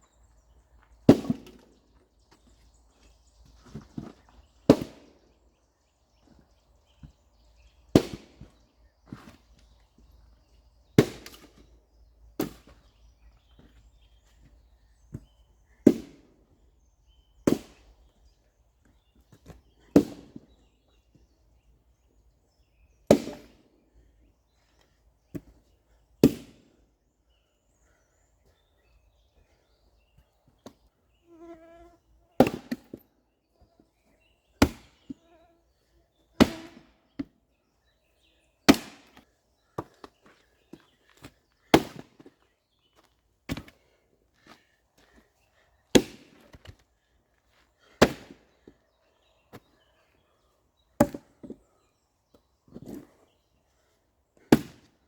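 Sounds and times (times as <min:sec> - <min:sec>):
wooden knocks of firewood: 0:51.0 - 0:51.6.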